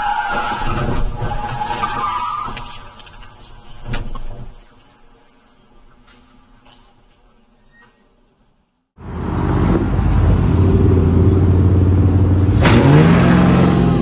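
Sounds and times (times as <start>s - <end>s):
road noise: 0.0s - 14.0s
car engine: 9.0s - 14.0s.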